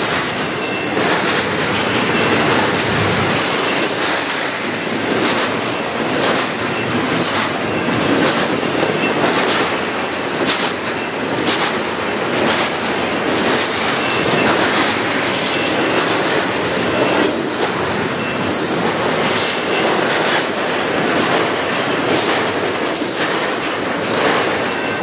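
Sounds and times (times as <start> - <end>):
wheel on rail rumble: 0.0 - 25.0
wheel squeals: 22.5 - 25.0.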